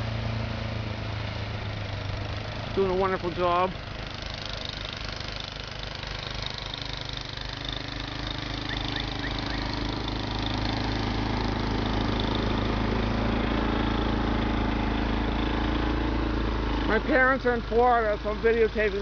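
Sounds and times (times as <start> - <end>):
snow-clearing machine engine running: 0.0 - 19.0.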